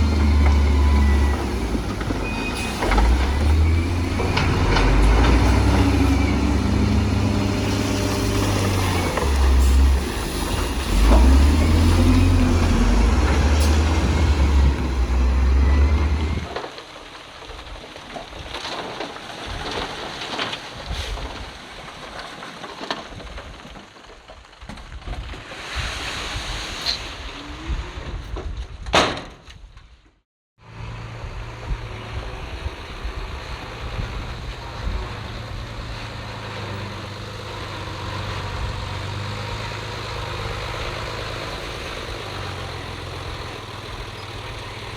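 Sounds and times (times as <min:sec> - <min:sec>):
heavy diesel engine rumble: 0:00.0 - 0:16.5, 0:30.6 - 0:44.9.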